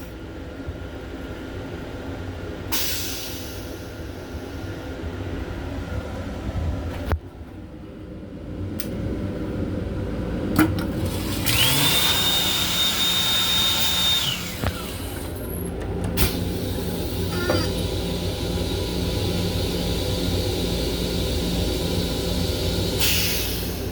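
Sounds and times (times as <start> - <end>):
train running rumble: 0.0 - 11.8, 14.1 - 23.9.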